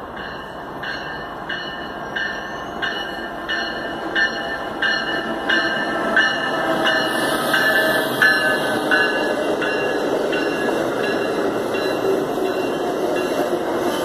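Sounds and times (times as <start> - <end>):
rumble of passing train cars: 0.0 - 14.0
locomotive bell ringing: 0.1 - 14.0.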